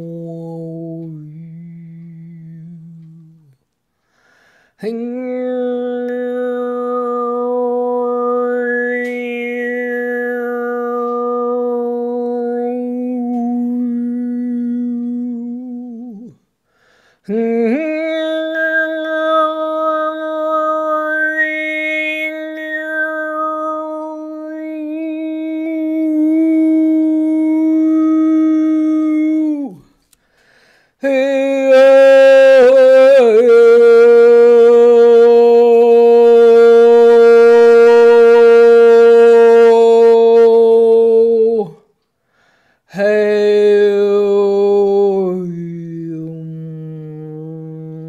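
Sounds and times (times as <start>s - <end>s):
woman breathing: 3.9s - 4.8s, 16.6s - 17.3s, 30.2s - 31.0s, 42.2s - 42.9s.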